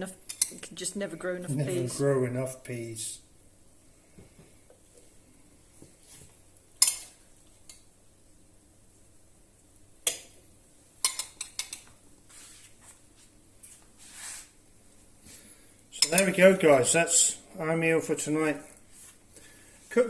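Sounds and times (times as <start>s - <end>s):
spoon clinking against plates: 11.0s - 11.8s, 16.0s - 16.4s.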